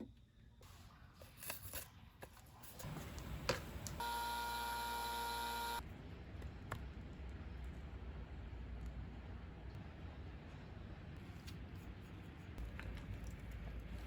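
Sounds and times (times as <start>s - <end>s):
electric buzz: 4.0s - 5.8s.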